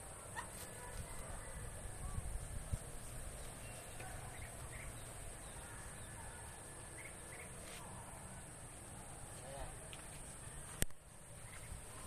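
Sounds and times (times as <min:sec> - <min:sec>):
bird chirps: 0:03.3 - 0:08.1.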